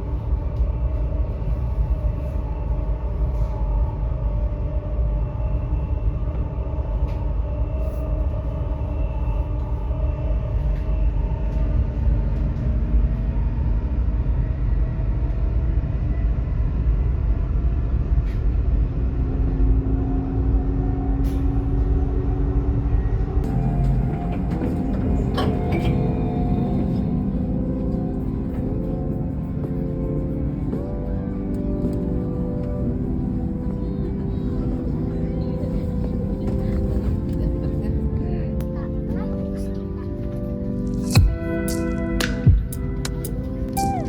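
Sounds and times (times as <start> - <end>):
electric train rumbling: 0.0 - 44.0
faint humming tones: 23.2 - 44.0.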